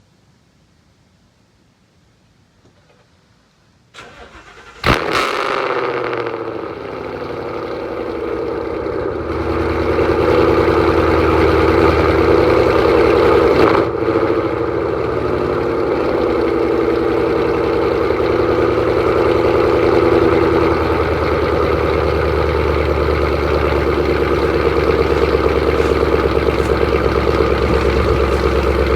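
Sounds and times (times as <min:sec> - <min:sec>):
engine cranking: 0:04.0 - 0:05.0, 0:20.4 - 0:28.9
car engine idling: 0:06.3 - 0:28.9.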